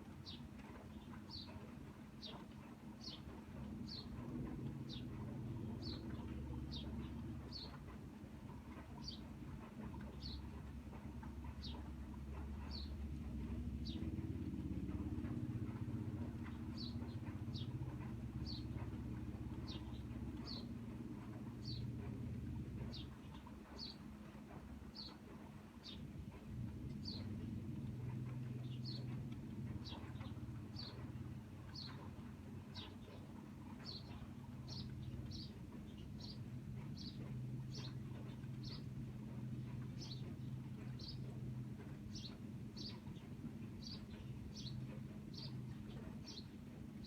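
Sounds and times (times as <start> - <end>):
vehicle engine rumble: 11.4 - 23.5.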